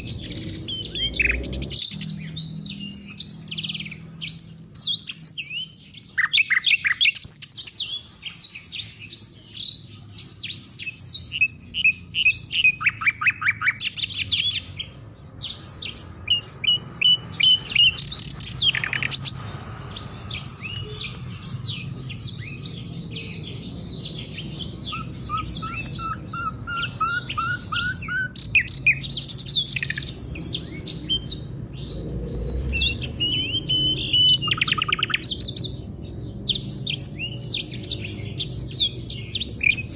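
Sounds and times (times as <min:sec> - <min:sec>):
short rising bird notes: 0:00.0 - 0:04.3, 0:16.2 - 0:35.8
songbirds chirping and trilling: 0:00.0 - 0:39.9.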